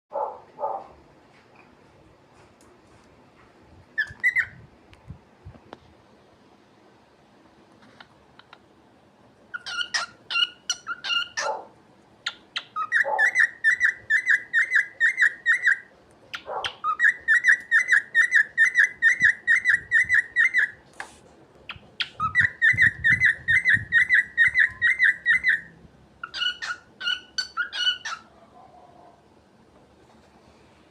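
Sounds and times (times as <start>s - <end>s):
cockatiel whistling chirps: 4.0s - 4.6s, 12.3s - 15.8s, 16.8s - 20.8s, 21.7s - 28.2s.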